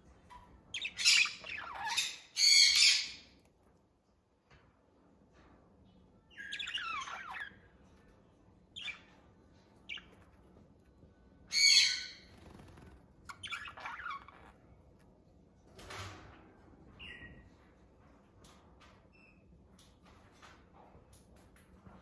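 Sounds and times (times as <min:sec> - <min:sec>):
budgies chirping and chattering: 0:00.7 - 0:03.3, 0:06.3 - 0:07.7, 0:08.8 - 0:09.2, 0:09.9 - 0:10.4, 0:11.5 - 0:14.6.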